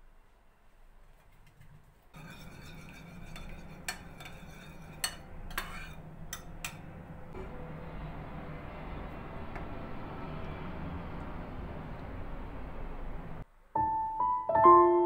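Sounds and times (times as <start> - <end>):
cutlery clinking on dishes: 2.2 - 7.0
low hum: 2.2 - 13.5.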